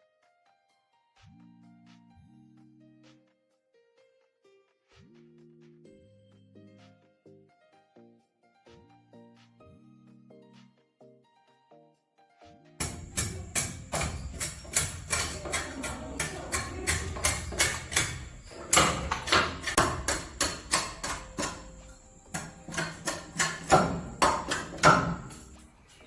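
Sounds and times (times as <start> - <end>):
rapid sharp knocks: 12.8 - 25.6.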